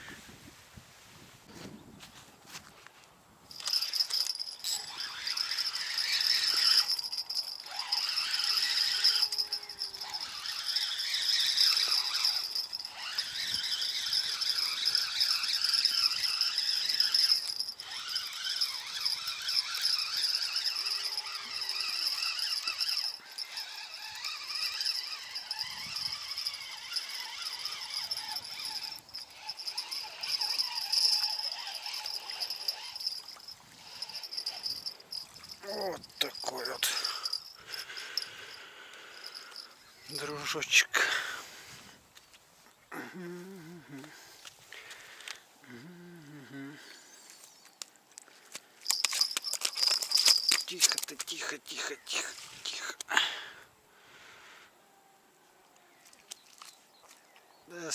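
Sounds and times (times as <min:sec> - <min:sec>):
insects chirring: 0:03.5 - 0:40.6, 0:44.8 - 0:53.0.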